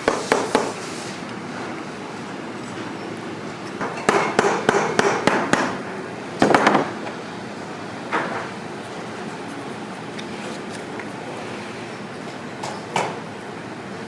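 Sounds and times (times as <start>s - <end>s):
hammer striking a boot: 0.0s - 0.8s.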